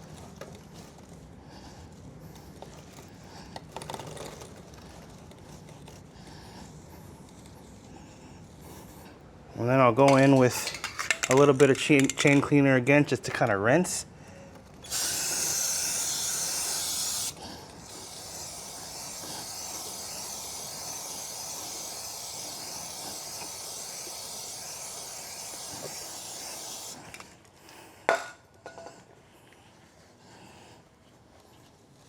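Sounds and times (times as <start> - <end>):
aerosol can hissing: 14.8 - 27.3.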